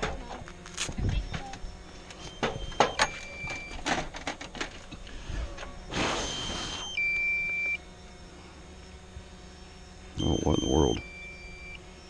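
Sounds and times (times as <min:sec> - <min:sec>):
electronic beeps: 0:02.2 - 0:03.8, 0:06.2 - 0:07.8, 0:10.2 - 0:11.9.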